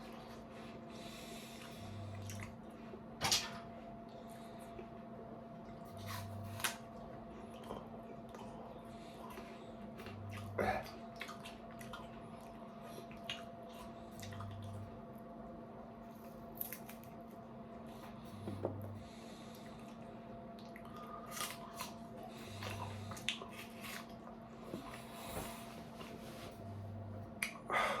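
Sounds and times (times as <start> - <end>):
steady electrical hum: 0.0 - 28.0
apple chewing crunches: 5.9 - 8.6, 20.7 - 24.4.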